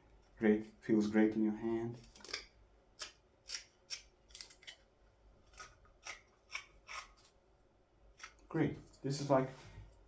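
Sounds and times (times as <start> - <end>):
knife shaving wood: 5.5 - 7.3.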